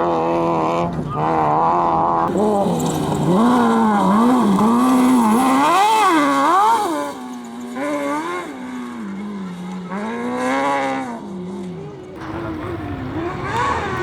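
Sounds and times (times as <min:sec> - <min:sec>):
racing engine revving: 0:00.0 - 0:14.0.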